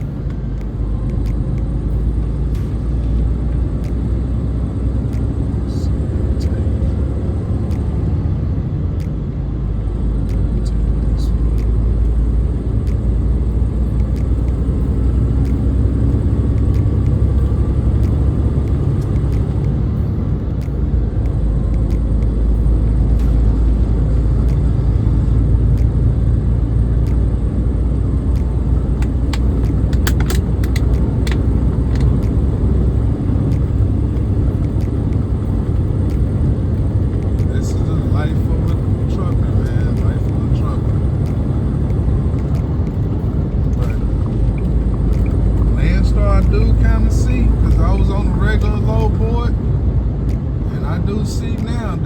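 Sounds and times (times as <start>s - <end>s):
road noise: 0.0s - 52.0s
truck diesel engine rumble: 0.0s - 52.0s.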